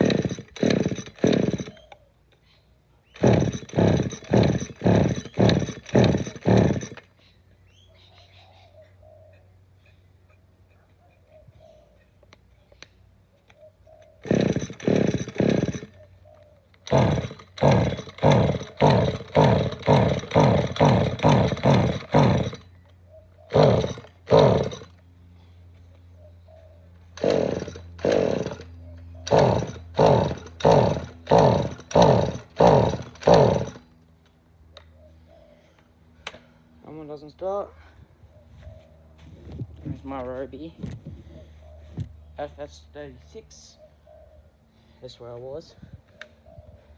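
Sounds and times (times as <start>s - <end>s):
string trimmer pull-start cranking: 0.0s - 2.0s, 3.1s - 7.2s, 14.2s - 16.0s, 16.8s - 22.7s, 23.5s - 25.0s, 27.1s - 33.9s.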